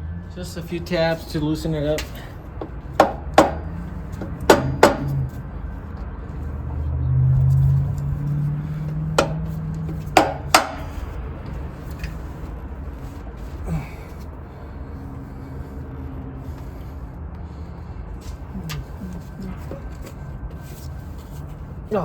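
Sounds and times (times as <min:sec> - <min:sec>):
sharp taps on metal: 0:02.0 - 0:05.4, 0:08.8 - 0:11.1.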